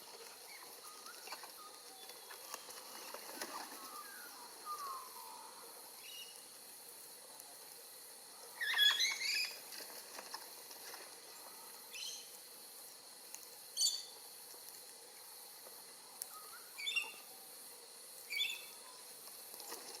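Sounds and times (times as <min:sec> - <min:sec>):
birds chirping: 0:00.2 - 0:06.5, 0:08.3 - 0:09.7.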